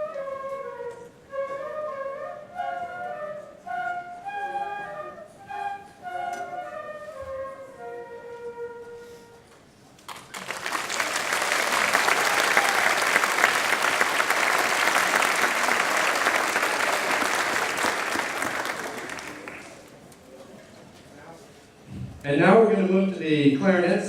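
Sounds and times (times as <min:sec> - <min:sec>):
flute held note: 0:00.0 - 0:09.6
audience applause: 0:10.1 - 0:19.9.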